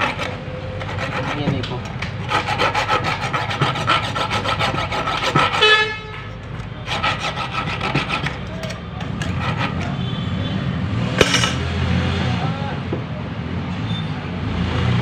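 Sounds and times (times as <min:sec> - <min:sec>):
blade scraping rust off steel: 0:00.0 - 0:10.0.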